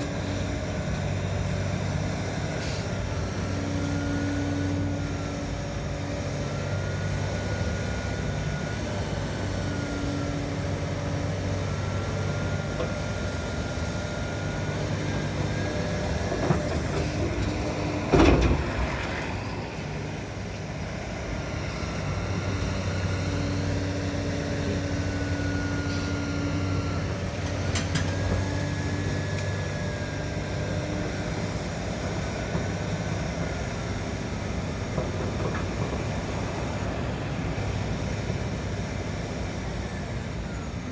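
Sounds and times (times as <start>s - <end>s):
excavator diesel engine: 0.0s - 40.9s
hydraulic whine: 0.0s - 40.9s
loud clunk: 16.4s - 19.2s.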